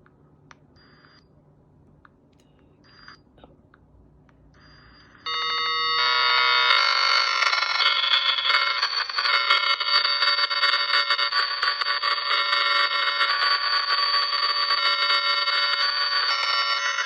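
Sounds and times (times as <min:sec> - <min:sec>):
faint electronic chirps: 0:00.8 - 0:01.3, 0:04.5 - 0:05.4
shrill electronic ringing: 0:04.6 - 0:17.0.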